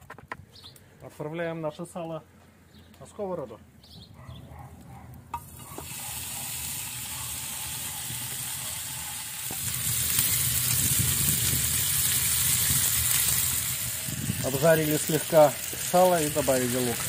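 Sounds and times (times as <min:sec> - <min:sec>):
pork fat sizzling in a frying pan: 0:05.4 - 0:17.0.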